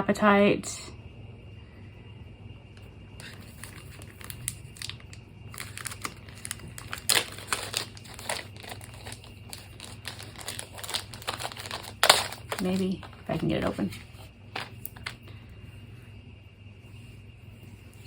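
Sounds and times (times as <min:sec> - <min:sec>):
plastic packaging crinkling: 0:03.2 - 0:15.2.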